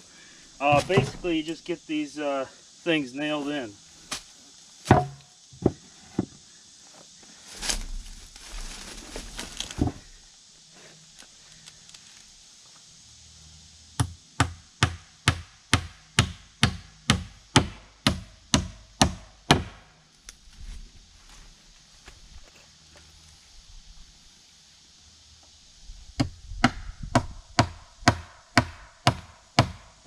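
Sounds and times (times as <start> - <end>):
rustle and scrape: 5.6 - 13.0, 20.2 - 24.3
hammer striking nails into wood: 14.4 - 19.8.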